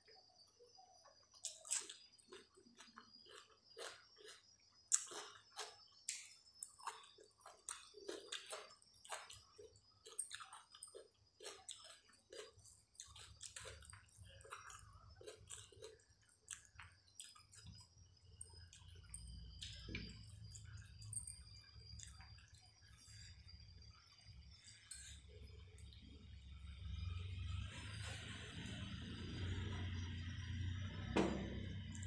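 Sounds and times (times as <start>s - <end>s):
wet chewing and lip smacks: 1.4s - 22.7s.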